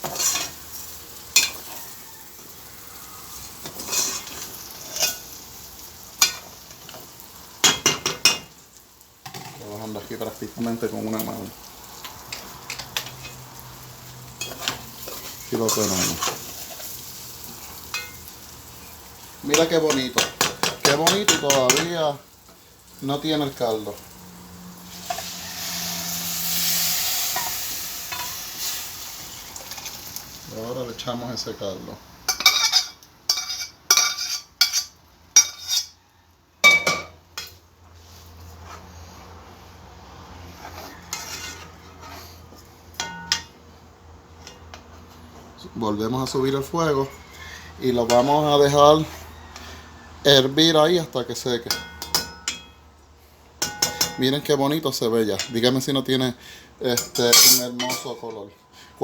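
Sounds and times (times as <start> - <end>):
spoon scraping a pot: 0.0 - 0.6, 3.6 - 5.3, 14.4 - 16.9, 32.3 - 36.0, 40.6 - 42.4
rice sizzling in a pot: 0.0 - 58.3.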